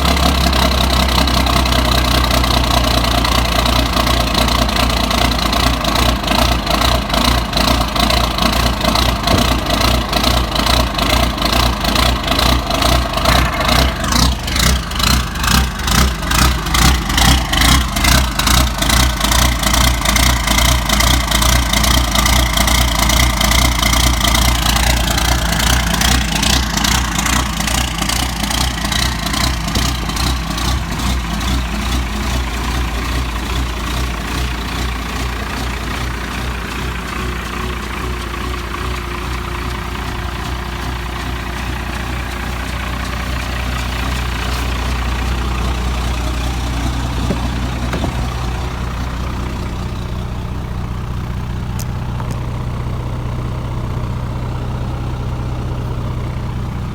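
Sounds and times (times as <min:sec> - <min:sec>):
diesel engine idling: 0:00.0 - 0:56.9.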